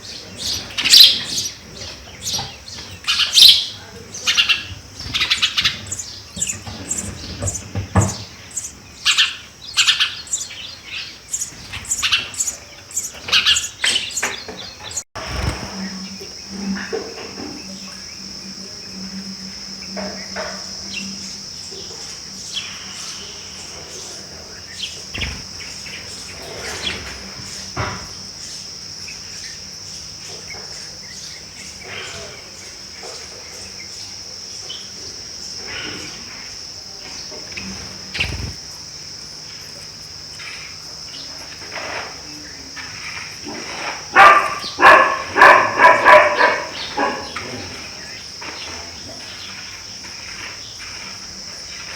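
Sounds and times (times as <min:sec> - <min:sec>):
insect chirring: 0:00.0 - 0:51.9
dog barking: 0:44.1 - 0:47.4.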